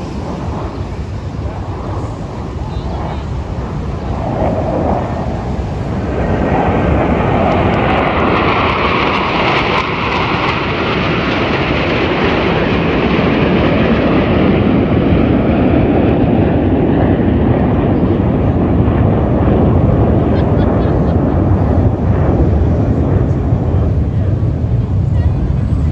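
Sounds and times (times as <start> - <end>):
jet aircraft engine roar: 0.0 - 25.9.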